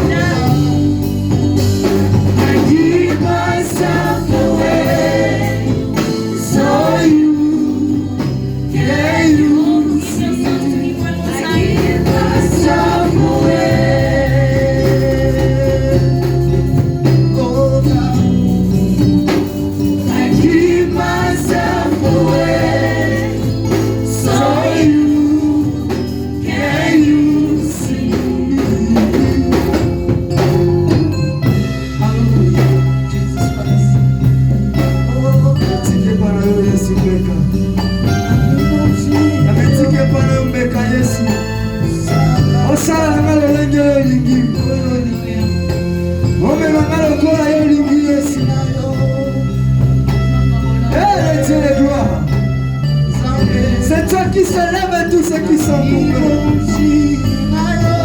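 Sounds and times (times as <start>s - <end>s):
choir singing: 0.0s - 1.1s, 2.2s - 16.5s, 20.0s - 29.9s
live band with bass and drums: 0.0s - 58.0s.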